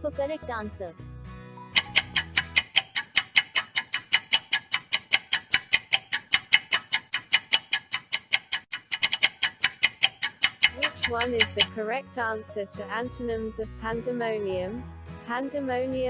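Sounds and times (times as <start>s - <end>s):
rapid clock ticking: 1.8s - 11.7s.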